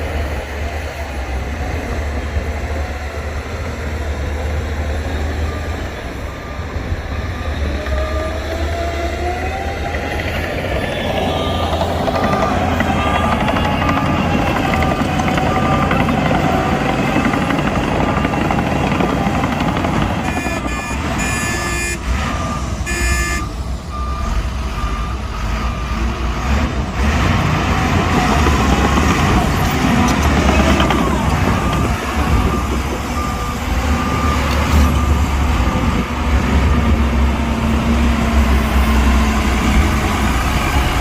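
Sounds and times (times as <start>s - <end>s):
heavy diesel machinery running: 0.0s - 41.0s
reversing alarm beeping: 4.2s - 26.2s, 29.0s - 37.5s.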